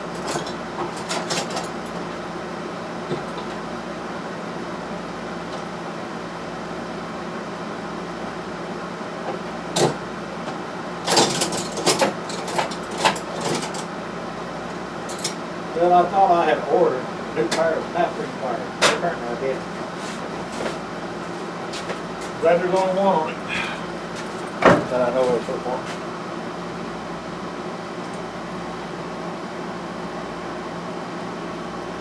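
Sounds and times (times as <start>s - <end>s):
steady background hum: 0.0s - 32.0s
hand tools clicking and knocking on metal: 11.1s - 13.9s.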